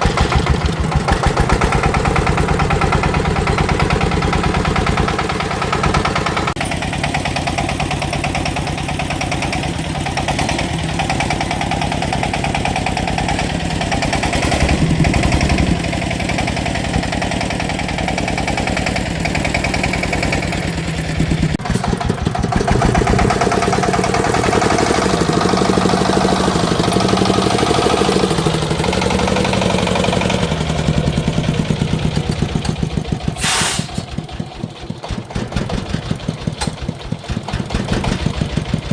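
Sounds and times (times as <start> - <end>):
farm machine engine running: 0.0 - 38.9
short loud hiss: 33.4 - 34.1.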